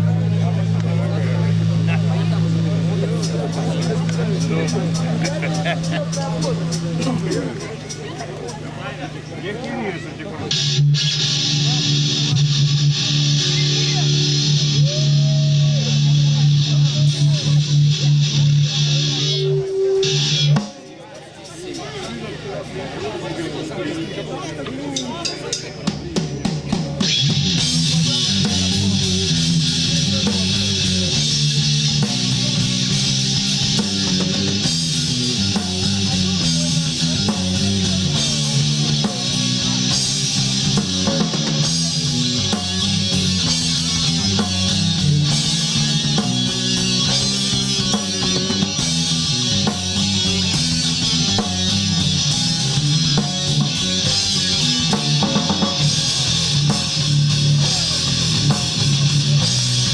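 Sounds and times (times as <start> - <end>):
electric guitar: 0.0 - 20.7, 26.4 - 59.9
drum kit beat: 1.5 - 8.8, 25.3 - 59.9.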